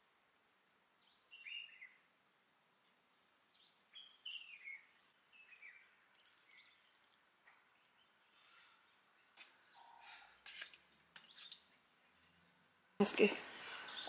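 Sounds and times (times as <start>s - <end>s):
faint bird chirps: 1.0s - 2.1s, 3.5s - 10.3s.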